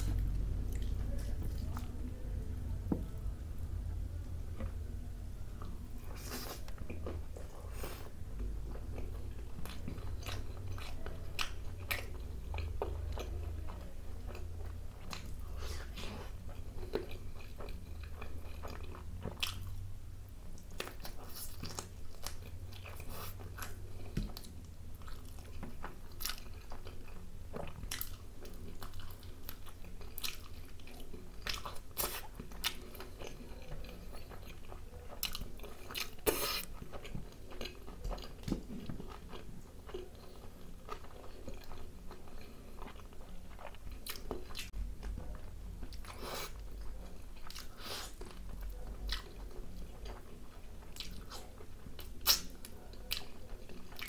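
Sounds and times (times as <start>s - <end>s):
close-up chewing: 0.0s - 2.1s, 5.6s - 19.9s, 20.5s - 54.0s.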